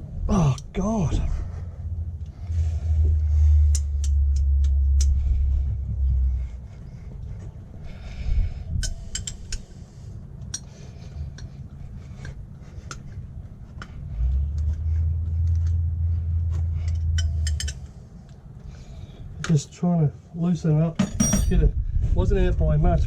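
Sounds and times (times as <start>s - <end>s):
low rumble: 0.0s - 19.4s, 21.0s - 23.0s
metal spanner clinking: 16.9s - 17.9s, 21.0s - 21.6s.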